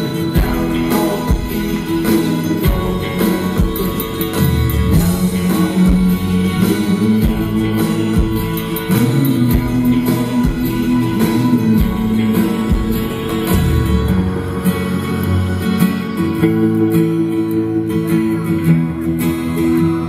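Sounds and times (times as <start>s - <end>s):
live pop-rock band: 0.0s - 20.0s
drum hits: 0.4s - 6.4s, 7.2s - 14.6s.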